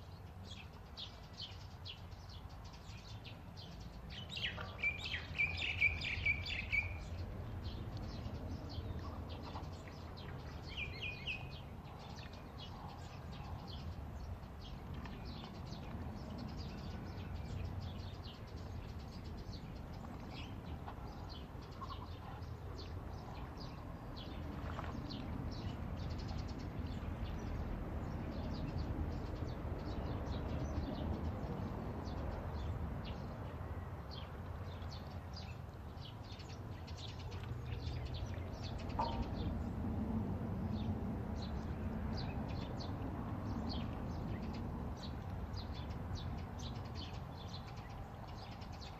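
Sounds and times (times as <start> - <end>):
birds chirping: 0.0 - 33.3, 34.1 - 39.8.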